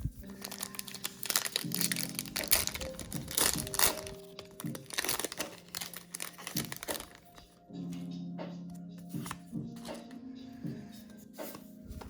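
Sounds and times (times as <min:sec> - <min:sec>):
foil wrapper crinkling and tearing: 0:00.2 - 0:07.4.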